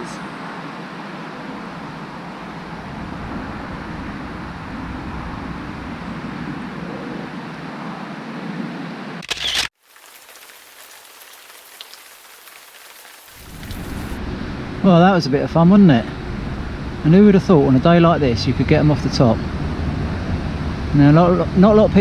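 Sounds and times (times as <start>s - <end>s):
wind and rain on microphone: 0.0s - 8.9s, 9.8s - 22.0s
rain patter: 9.7s - 14.2s.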